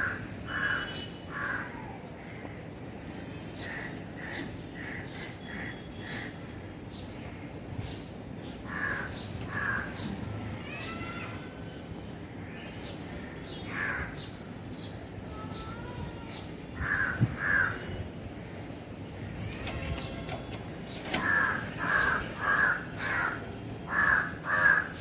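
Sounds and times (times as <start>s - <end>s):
crows cawing: 0.0s - 1.9s, 8.7s - 10.0s, 13.7s - 14.2s, 16.8s - 17.9s, 21.2s - 25.0s.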